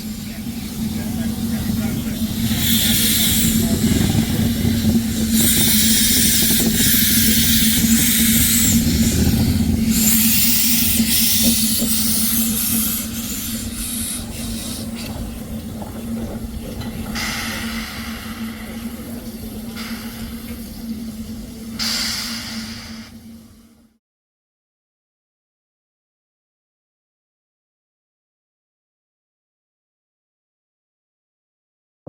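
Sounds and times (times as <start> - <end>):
steady low hum: 0.0 - 23.9
steam locomotive hissing: 0.0 - 24.0.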